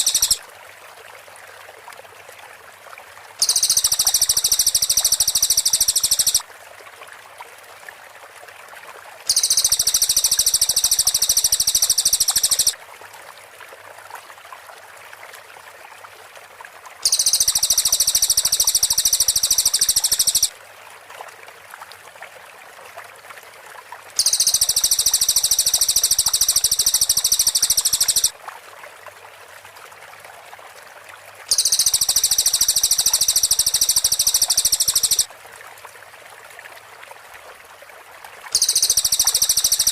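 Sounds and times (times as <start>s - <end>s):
background hiss: 0.0s - 0.4s, 3.4s - 6.4s, 9.3s - 12.8s, 17.0s - 20.5s, 24.2s - 28.3s, 31.5s - 35.3s
bird high rapid trill: 0.0s - 0.4s, 3.4s - 6.4s, 9.3s - 12.8s, 17.0s - 20.5s, 24.2s - 28.3s, 31.5s - 35.3s, 38.6s - 39.9s.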